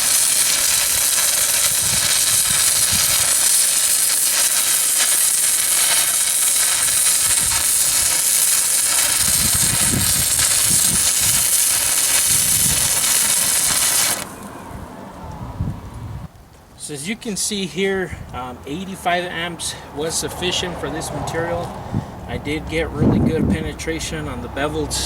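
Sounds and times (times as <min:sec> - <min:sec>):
welding arc crackling hiss: 0:00.0 - 0:14.5.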